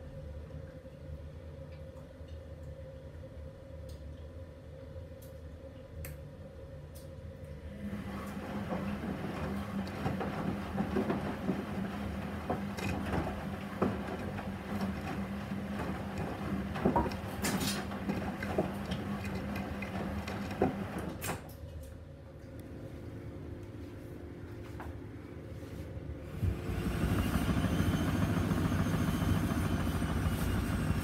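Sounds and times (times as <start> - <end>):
washing machine motor hum: 7.2 - 31.0
wet laundry sloshing: 8.1 - 21.2.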